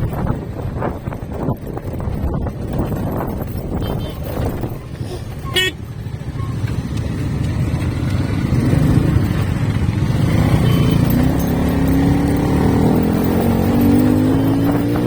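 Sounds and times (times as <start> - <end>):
motorcycle engine: 0.0 - 15.0
road noise: 0.0 - 15.0
horn beep: 5.4 - 6.6, 10.5 - 11.3.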